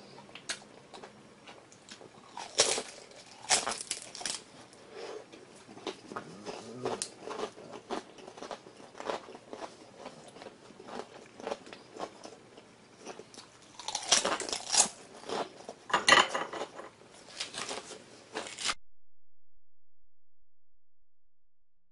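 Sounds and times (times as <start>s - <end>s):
person chewing crunchy food: 0.1s - 15.9s.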